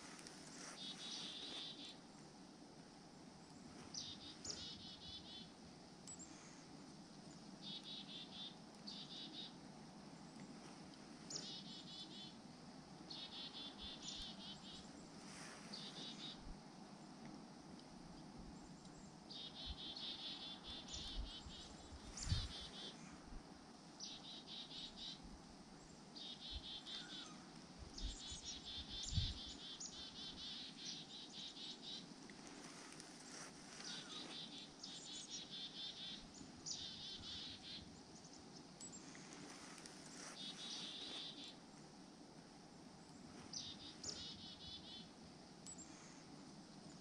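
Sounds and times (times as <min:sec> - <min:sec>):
small birds trilling: 0:33.3 - 0:39.2.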